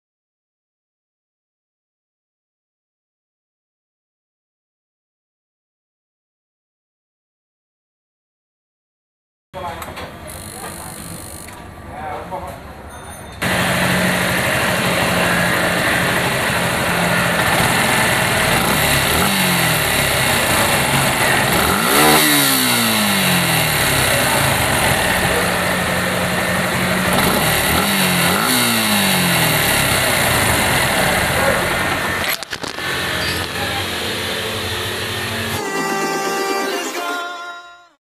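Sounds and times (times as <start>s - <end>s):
motorcycle engine idling: 10.2s - 11.6s, 13.4s - 32.2s, 32.8s - 35.6s
engine revving: 13.4s - 35.6s.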